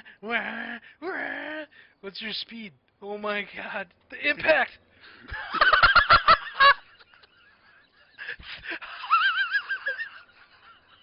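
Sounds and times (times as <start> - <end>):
man laughing wheezing: 5.1 - 11.0.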